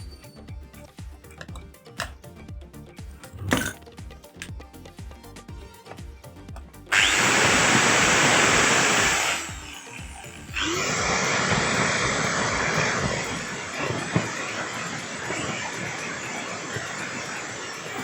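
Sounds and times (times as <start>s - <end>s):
angle grinder running: 6.9s - 18.0s.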